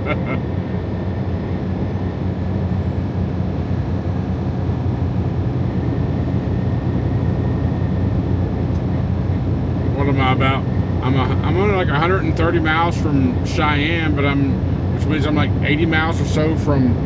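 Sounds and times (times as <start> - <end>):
truck engine drone: 0.0 - 17.0.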